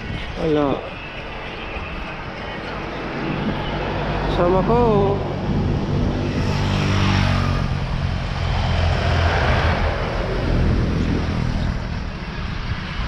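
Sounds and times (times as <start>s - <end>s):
vehicle passing by: 2.8s - 13.0s.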